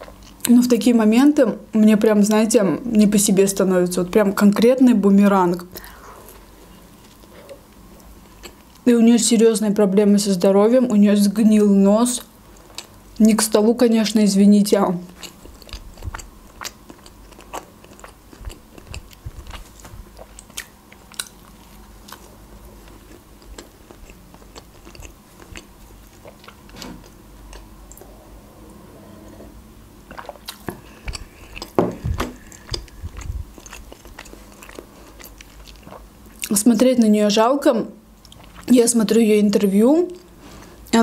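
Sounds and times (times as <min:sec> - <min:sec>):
person chewing bread: 0:06.2 - 0:08.8, 0:15.1 - 0:28.1, 0:30.0 - 0:36.5, 0:38.2 - 0:38.7.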